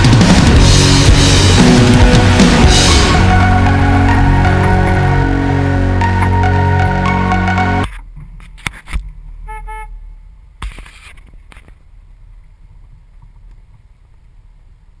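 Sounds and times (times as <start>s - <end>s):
vehicle horn toots: 9.5s - 10.1s.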